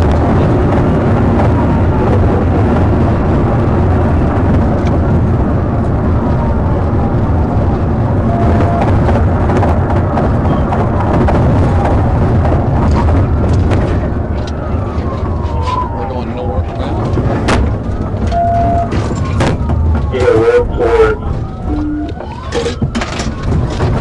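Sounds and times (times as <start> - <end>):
vehicle rumbling at high speed: 0.0 - 24.0
faint police siren: 1.0 - 2.7, 6.2 - 9.1, 14.0 - 24.0.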